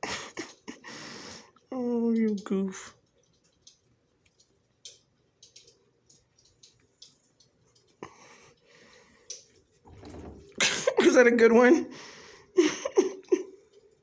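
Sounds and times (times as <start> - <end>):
cat chewing: 2.3 - 9.8.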